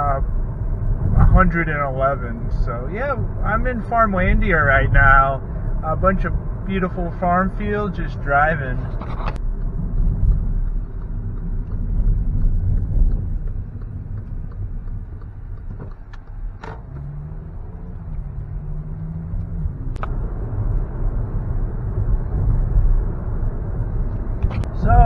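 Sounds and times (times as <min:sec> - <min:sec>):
car road and engine rumble: 0:00.0 - 0:25.0.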